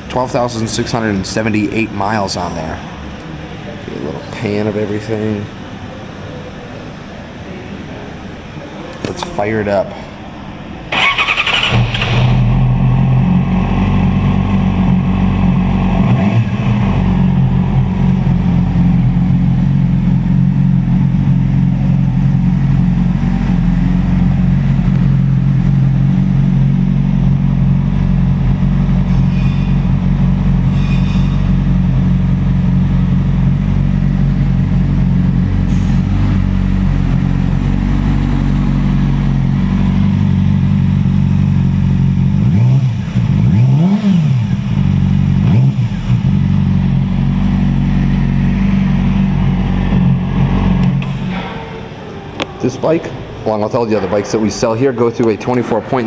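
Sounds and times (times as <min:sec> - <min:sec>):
motorcycle engine starting and idling: 0:10.9 - 0:52.1.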